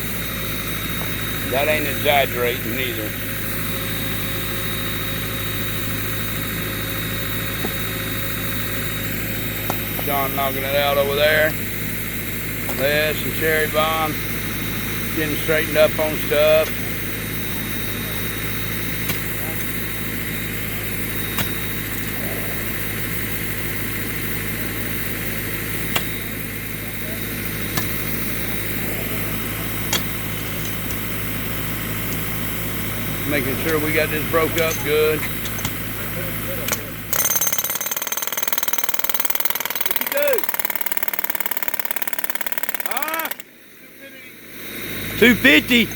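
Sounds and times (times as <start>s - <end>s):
engine running steadily: 0.0s - 37.7s, 42.8s - 45.9s.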